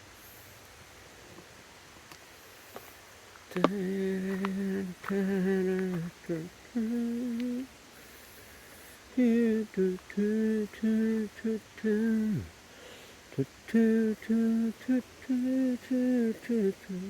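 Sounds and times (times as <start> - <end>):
person humming a tune: 3.5 - 7.7, 9.1 - 12.5, 13.3 - 17.0.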